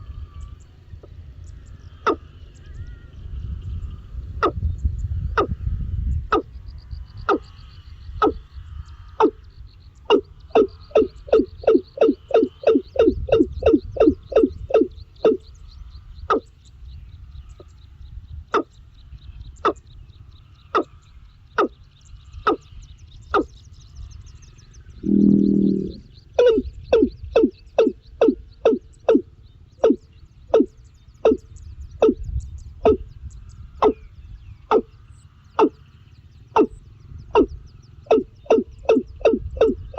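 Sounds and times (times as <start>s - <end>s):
lower pitched animal call: 1.9s - 4.6s, 7.2s - 9.4s, 10.0s - 15.6s, 16.2s - 16.5s, 21.6s - 21.8s, 25.0s - 33.1s, 33.8s - 39.9s
animal calling in sharp notes: 8.2s - 8.4s, 9.2s - 15.5s, 16.3s - 16.5s, 21.6s - 21.8s, 25.0s - 32.2s, 32.8s - 33.0s, 33.8s - 34.0s, 34.7s - 35.0s, 35.6s - 39.9s
faint high trill: 25.0s - 26.2s.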